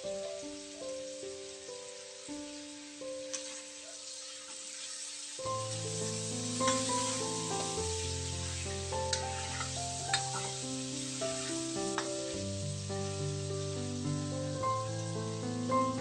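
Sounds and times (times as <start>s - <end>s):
food sizzling in a wok: 0.0s - 16.0s
metal spatula scraping a pan: 6.6s - 7.8s, 8.4s - 12.4s.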